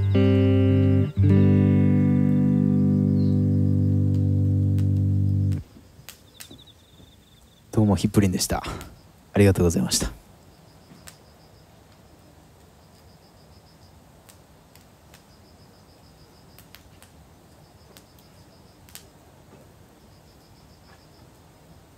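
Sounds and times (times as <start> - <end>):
insects chirping: 0.0 - 21.9
campfire crackling pops: 2.2 - 7.6, 8.4 - 9.0, 10.8 - 19.8.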